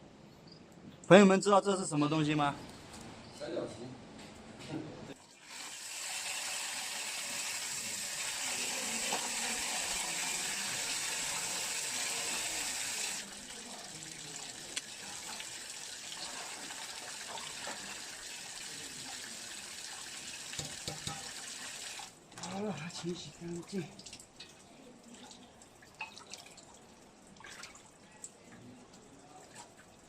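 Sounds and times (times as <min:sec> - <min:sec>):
tap water running into sink: 0:05.2 - 0:22.1.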